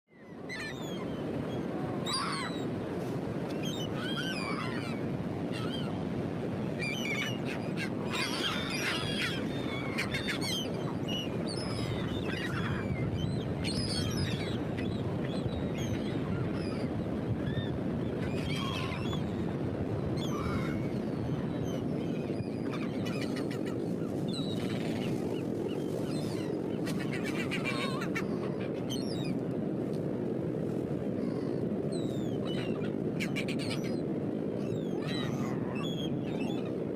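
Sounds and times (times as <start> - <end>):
birds calling in high cries: 0.2 - 2.7, 6.8 - 17.7
surf washing on a beach: 0.2 - 36.9.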